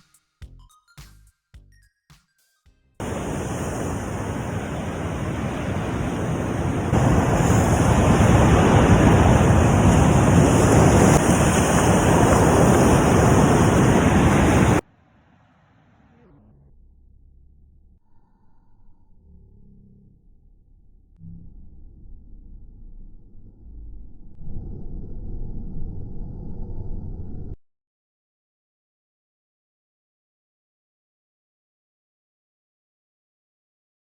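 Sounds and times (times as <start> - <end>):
sea surf: 3.0 - 14.8
wind on the shore: 3.0 - 14.8.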